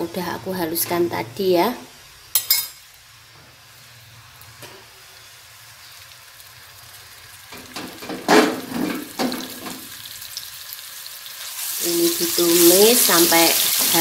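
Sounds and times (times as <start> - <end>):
spice paste sizzling in oil: 0.0 - 14.0
wok knocking and scraping on stove: 7.5 - 9.9.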